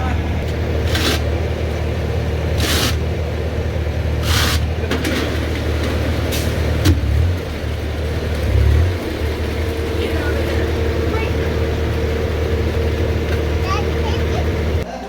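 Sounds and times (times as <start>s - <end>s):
engine running: 0.0s - 14.9s.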